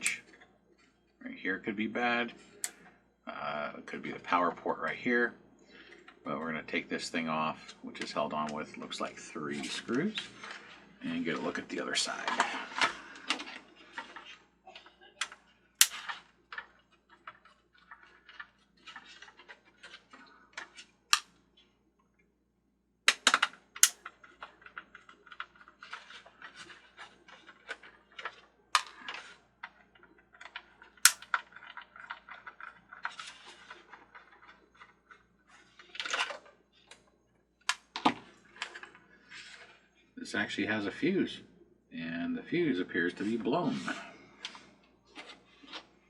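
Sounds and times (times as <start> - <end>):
circuit board handling clicks: 31.0 - 31.3.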